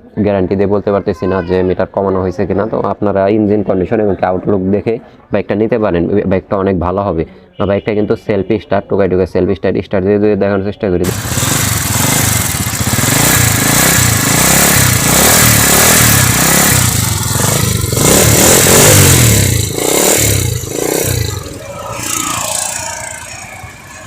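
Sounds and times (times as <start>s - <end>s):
electric starter: 11.0s - 24.0s
motorcycle engine revving: 11.0s - 24.0s.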